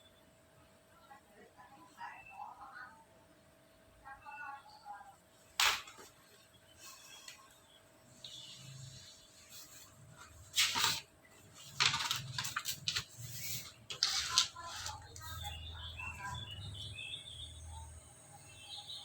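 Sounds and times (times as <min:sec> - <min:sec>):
small birds chirping: 0:06.4 - 0:09.5, 0:14.6 - 0:19.0
scratchy rustles: 0:08.7 - 0:15.5.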